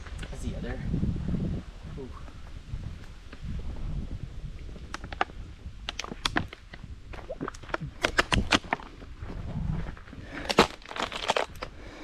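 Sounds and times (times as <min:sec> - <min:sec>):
wind rumble on microphone: 0:00.0 - 0:12.0
footsteps crunching on dirt trail: 0:08.4 - 0:11.6.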